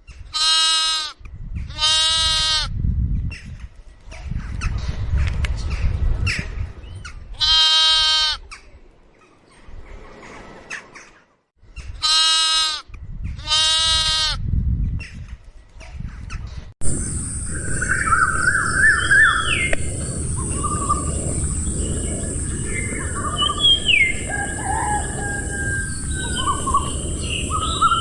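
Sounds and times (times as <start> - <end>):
goat bleating: 7.4 - 8.4
rough low noise: 16.8 - 28.0.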